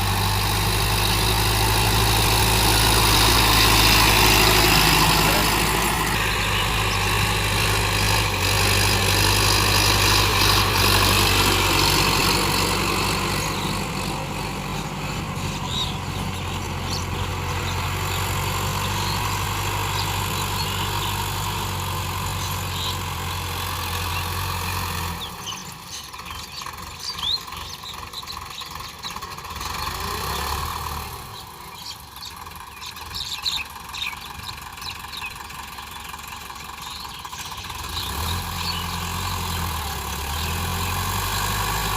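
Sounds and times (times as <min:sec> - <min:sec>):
tractor engine humming: 0:00.0 - 0:41.9.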